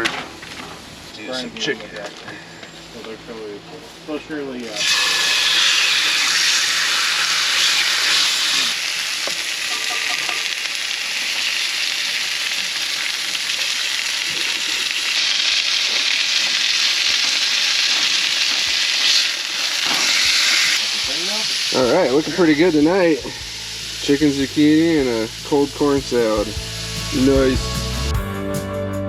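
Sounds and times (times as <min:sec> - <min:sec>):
chicken sizzling in a pan: 0:04.7 - 0:27.6.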